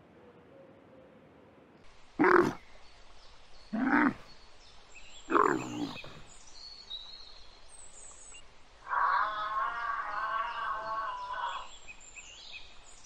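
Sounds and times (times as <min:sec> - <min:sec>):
camel calling: 0:02.2 - 0:02.6, 0:03.7 - 0:04.3, 0:05.3 - 0:06.3.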